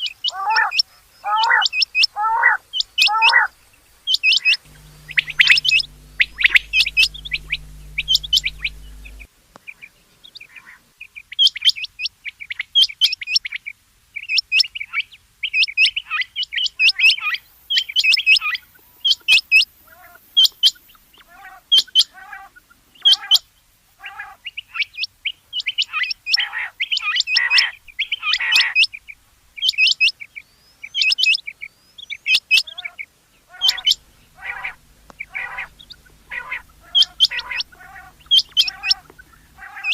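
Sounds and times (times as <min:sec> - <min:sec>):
quail calling: 0:33.5 - 0:39.9.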